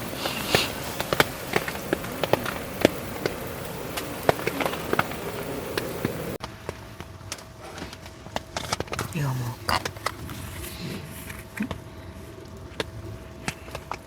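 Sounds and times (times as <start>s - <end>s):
rain hiss: 0.0s - 6.4s, 8.6s - 14.0s
raindrops tapping on tent: 0.0s - 14.0s.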